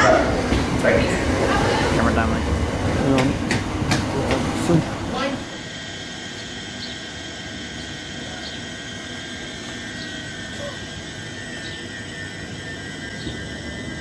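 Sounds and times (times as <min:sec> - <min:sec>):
electric train rumble: 0:00.0 - 0:14.0
high whine: 0:04.1 - 0:14.0.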